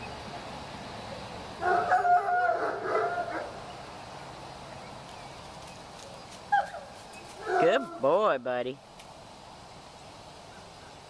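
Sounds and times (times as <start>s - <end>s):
animal calling: 6.5s - 8.2s.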